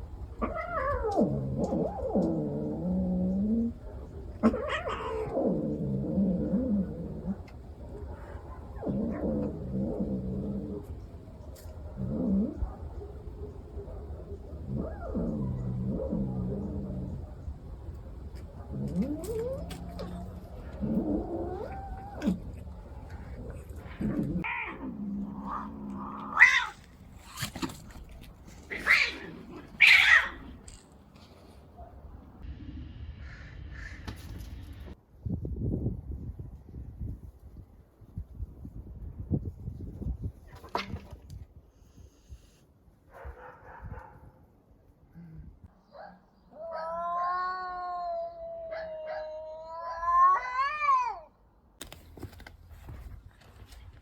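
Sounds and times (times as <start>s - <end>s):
cat growling yowl: 0.4s - 11.0s, 14.5s - 26.9s, 28.7s - 30.6s, 46.5s - 51.4s
cat yowling: 4.4s - 5.4s, 46.5s - 51.4s.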